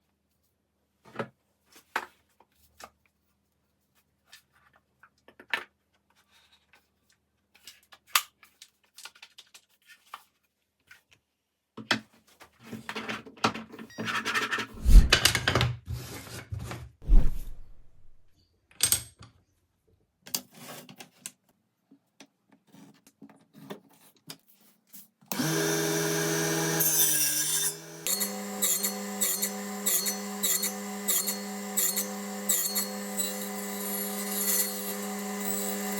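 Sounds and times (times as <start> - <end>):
rubbing and scraping: 14.5 - 15.2, 17.0 - 18.3
heavy thuds: 17.0 - 18.3.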